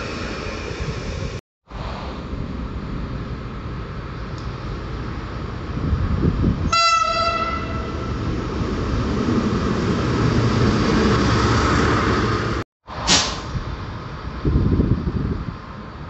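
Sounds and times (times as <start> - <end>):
train rumble and rail hiss: 0.0 - 16.0
train horn blast: 6.7 - 8.2.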